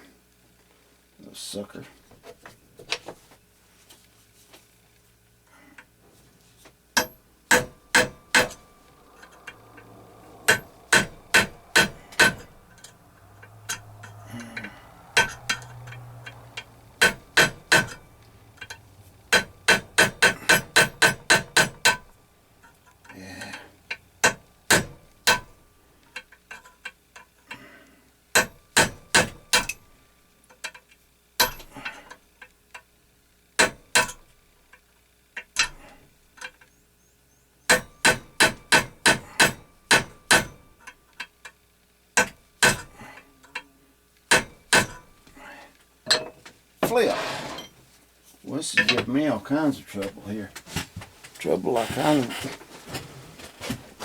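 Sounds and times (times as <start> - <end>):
small hammer tapping metal: 7.0 - 8.6, 10.5 - 18.0, 18.6 - 22.1, 24.2 - 25.5, 28.4 - 29.8, 31.4 - 32.0, 33.6 - 34.2, 37.7 - 41.6, 42.2 - 43.7.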